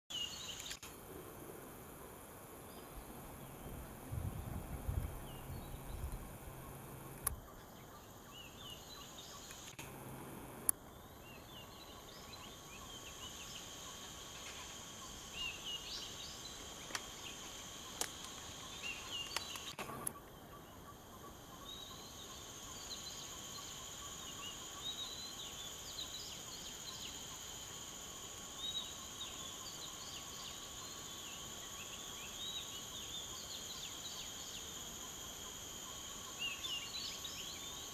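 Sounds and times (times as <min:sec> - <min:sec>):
insect drone: 0:00.1 - 0:37.9
sharp clicks: 0:07.1 - 0:07.4, 0:09.5 - 0:10.0, 0:19.2 - 0:20.2.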